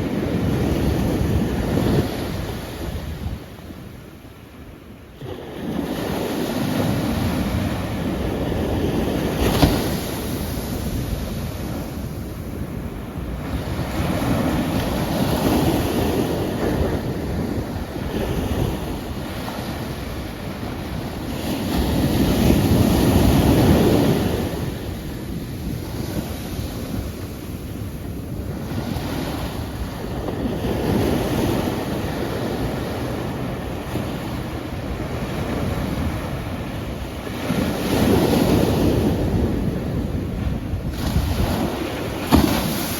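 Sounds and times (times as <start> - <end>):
ocean waves washing onto shore: 0.0 - 42.9.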